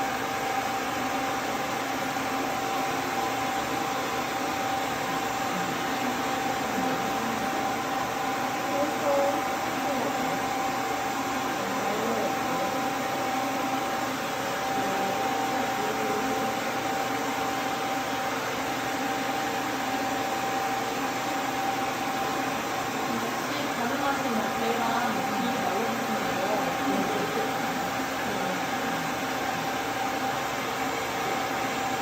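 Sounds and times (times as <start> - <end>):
pet dryer blowing air: 0.0 - 32.0.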